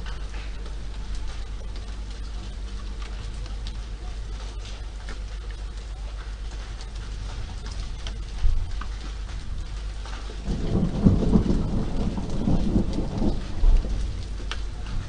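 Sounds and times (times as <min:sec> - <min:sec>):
steady rain: 0:00.0 - 0:15.0
rolling thunder: 0:10.3 - 0:15.0.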